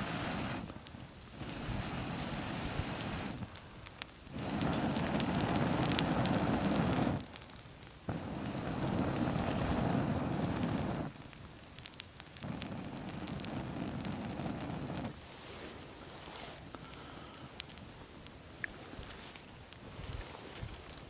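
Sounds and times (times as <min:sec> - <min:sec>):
campfire crackling and popping: 0:00.0 - 0:21.0
steady rushing noise: 0:08.1 - 0:11.1.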